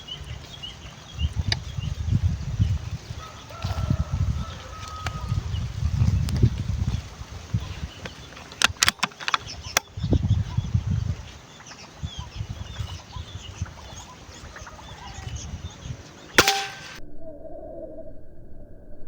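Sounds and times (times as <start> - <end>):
faint bird calls: 7.4 - 16.9
air rifle shot: 16.4 - 17.0.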